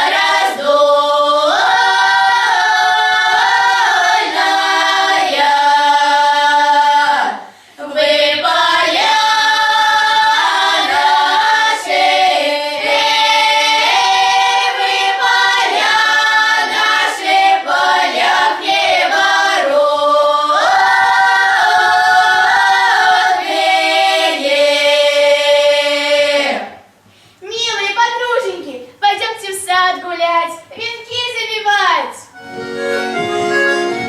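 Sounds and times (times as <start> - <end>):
choir singing: 0.0 - 26.8.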